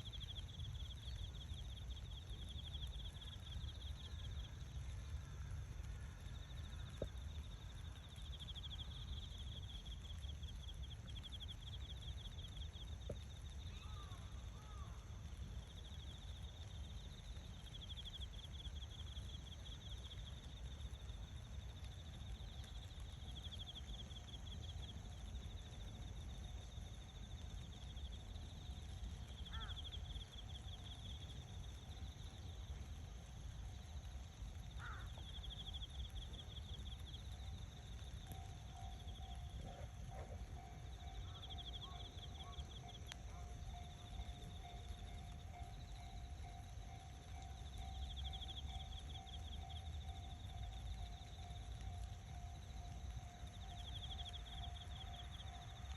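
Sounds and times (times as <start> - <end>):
insects trilling: 0.0 - 55.9
low outdoor rumble: 0.0 - 55.9
faint bird chirps: 8.2 - 15.0, 28.8 - 31.0.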